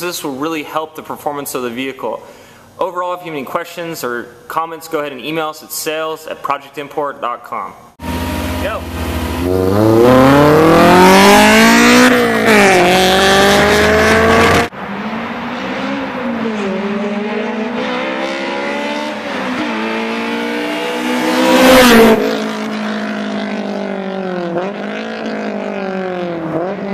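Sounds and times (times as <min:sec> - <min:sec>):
car engine revving hard: 0:08.0 - 0:26.9.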